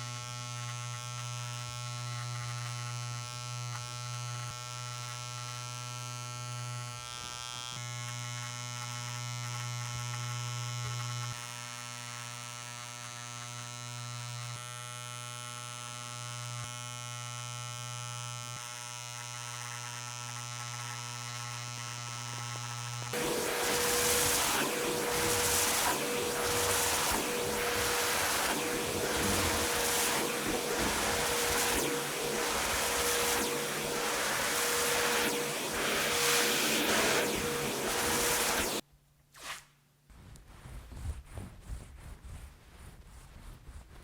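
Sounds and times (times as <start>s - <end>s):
electric tufting gun buzzing: 18.9s - 38.8s
loud rushing noise: 23.2s - 38.8s.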